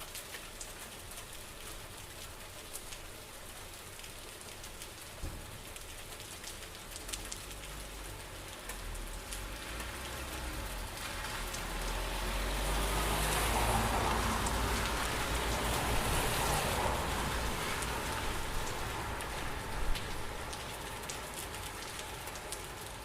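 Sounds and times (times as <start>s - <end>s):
steady rain falling: 0.0s - 23.0s
drops ticking on a surface: 4.0s - 12.0s.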